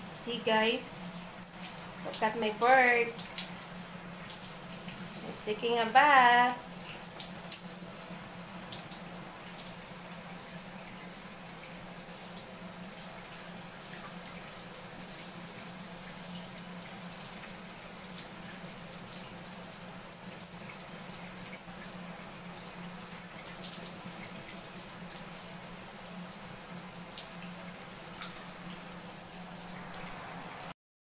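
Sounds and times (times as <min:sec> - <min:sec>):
tap water running: 0:00.0 - 0:30.7.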